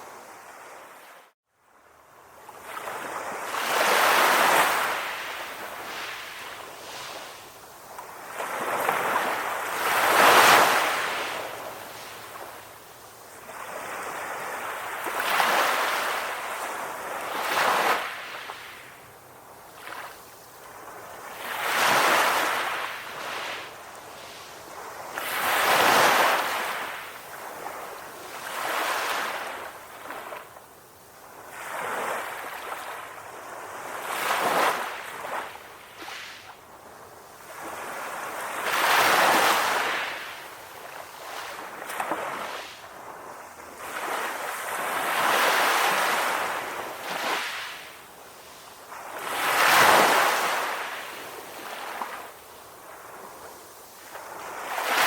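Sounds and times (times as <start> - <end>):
ocean waves breaking: 8.2 - 18.9.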